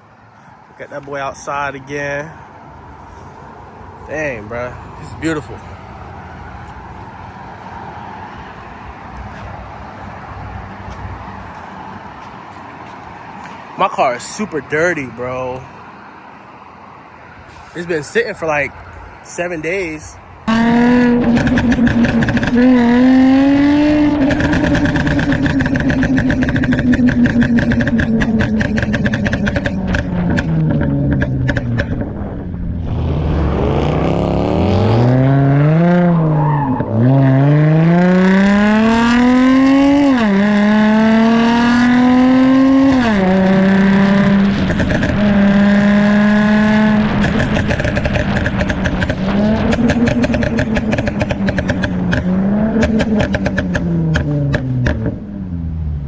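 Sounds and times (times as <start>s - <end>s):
car engine accelerating: 20.4s - 56.0s
car engine crackling pops: 21.2s - 22.8s, 24.2s - 32.4s, 44.4s - 45.4s, 46.8s - 55.2s.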